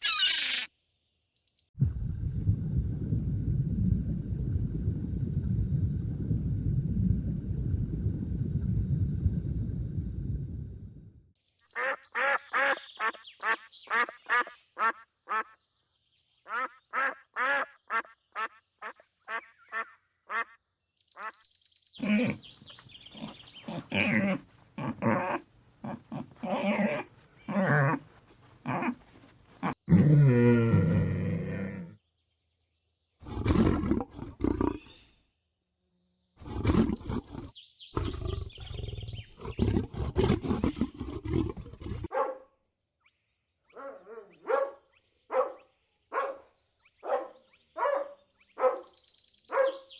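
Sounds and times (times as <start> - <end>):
animal calls: 0.0 - 0.7.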